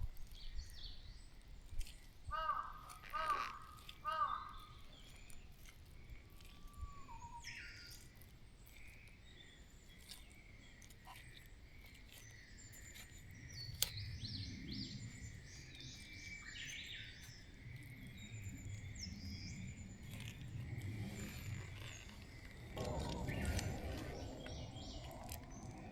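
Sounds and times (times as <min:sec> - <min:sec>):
small birds singing and chirping: 0:00.0 - 0:25.9.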